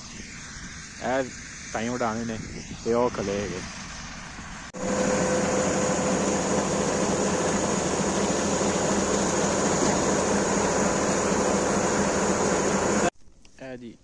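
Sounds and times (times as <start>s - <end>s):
combine harvester droning: 3.8s - 13.1s.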